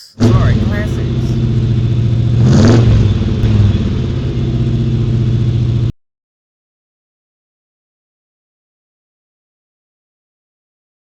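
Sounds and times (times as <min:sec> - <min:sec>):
rough hot rod engine revving: 0:00.2 - 0:05.1.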